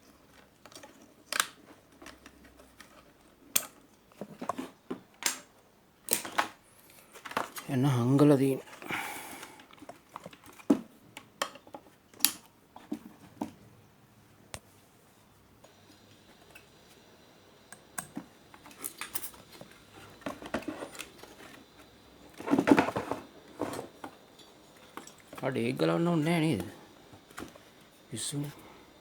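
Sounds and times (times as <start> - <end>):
handling noise: 15.7 - 29.0.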